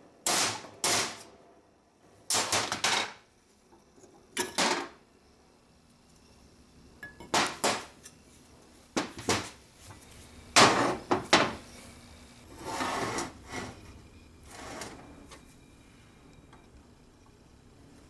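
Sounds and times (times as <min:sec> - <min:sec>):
rubbing scraping sound: 0:12.5 - 0:13.8.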